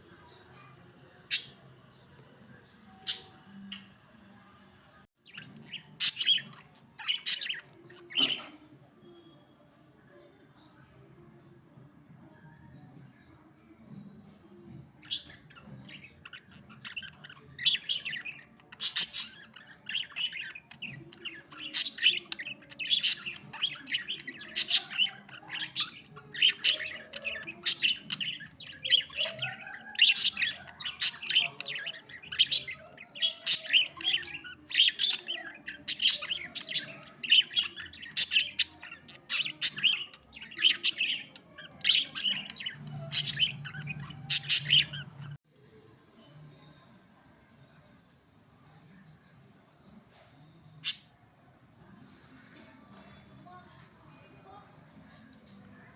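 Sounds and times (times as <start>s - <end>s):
budgerigars chirping and squawking: 5.3s - 8.5s, 15.1s - 45.4s.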